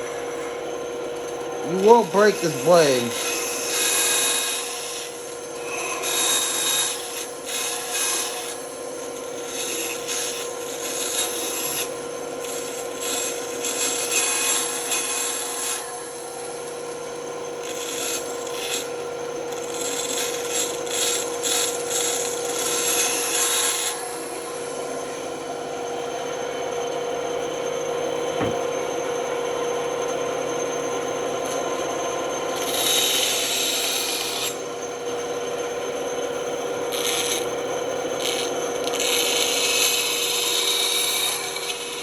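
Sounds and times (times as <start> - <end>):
band saw cutting wood: 1.6 - 8.7, 32.4 - 34.8, 36.8 - 42.0.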